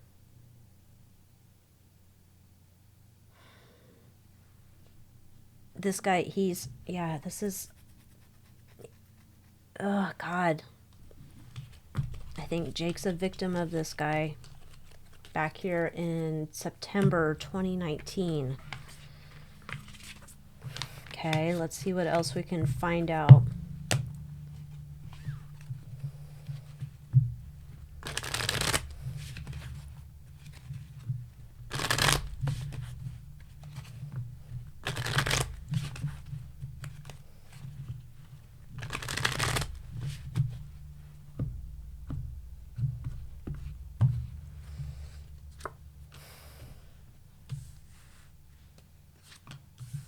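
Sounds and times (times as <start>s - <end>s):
cards being shuffled: 11.2s - 15.6s, 17.0s - 22.5s, 27.5s - 42.2s
light card handling and taps: 17.0s - 22.5s, 28.0s - 38.0s, 38.8s - 42.3s.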